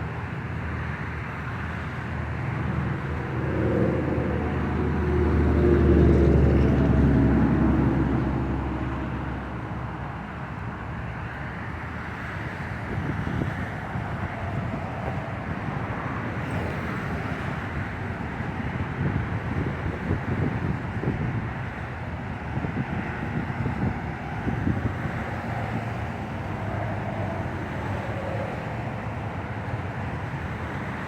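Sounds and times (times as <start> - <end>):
gusty wind: 0.0 - 31.0
vehicle engine driving past: 2.3 - 9.6.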